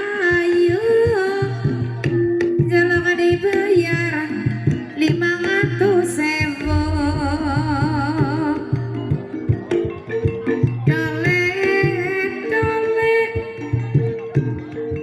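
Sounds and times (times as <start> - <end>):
pitched gamelan instruments: 0.0 - 15.0
hand drum strokes: 6.5 - 11.0
person singing wavering melody: 6.6 - 9.1.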